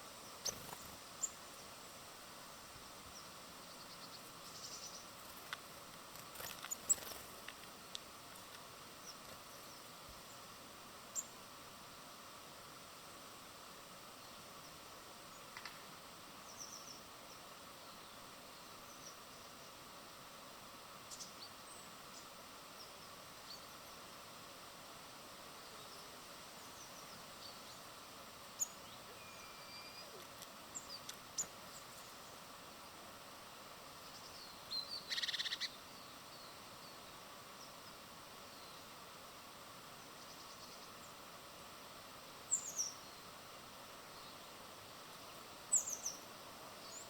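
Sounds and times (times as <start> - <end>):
small birds chirping: 0.0 - 2.0, 3.0 - 11.4, 16.4 - 19.8, 21.0 - 24.1, 25.5 - 33.0, 33.8 - 39.1, 39.8 - 41.7, 42.4 - 47.0
steady outdoor hiss: 0.0 - 47.0
buzzy bird trill: 28.6 - 30.2, 34.9 - 35.8.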